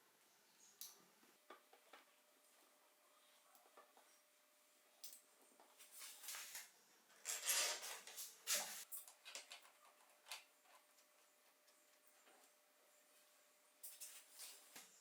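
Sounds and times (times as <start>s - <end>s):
light clicks and scraping: 13.8s - 15.0s.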